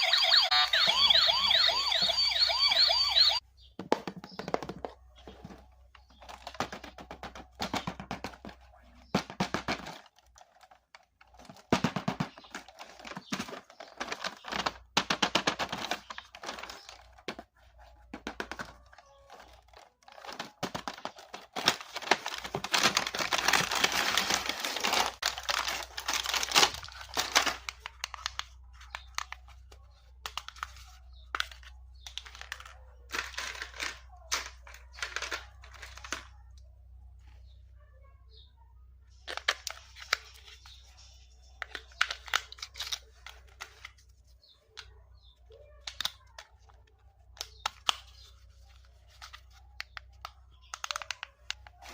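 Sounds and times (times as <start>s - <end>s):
packaging crinkling: 12.3s - 29.6s.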